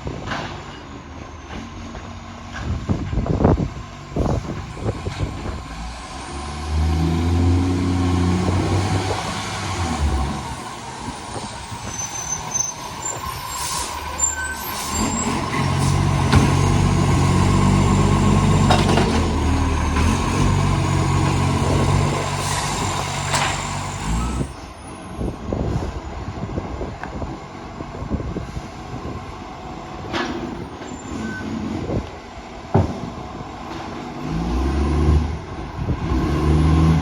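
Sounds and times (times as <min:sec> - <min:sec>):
diesel engine with exhaust leak: 0:00.0 - 0:37.0
sharp clunks: 0:16.2 - 0:16.9.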